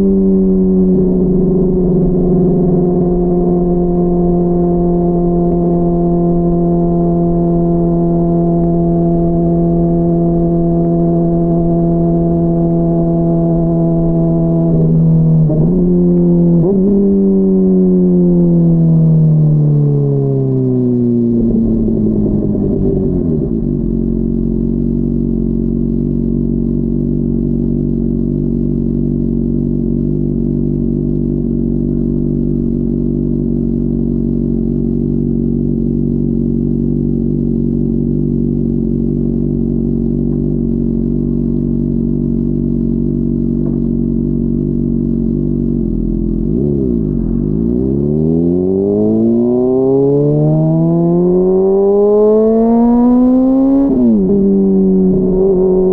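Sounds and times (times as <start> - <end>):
motorcycle engine idling: 20.6 - 47.6.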